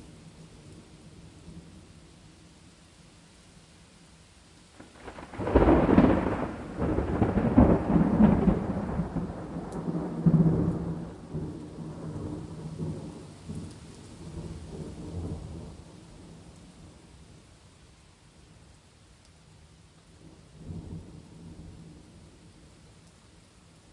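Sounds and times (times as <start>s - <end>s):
steady rain: 0.0s - 23.9s
thunder crack and rumble: 4.8s - 16.5s.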